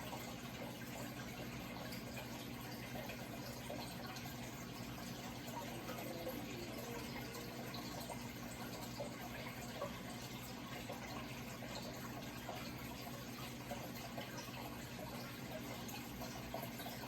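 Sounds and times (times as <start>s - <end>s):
faint steady hum: 0.0s - 17.0s
running water: 0.0s - 17.0s.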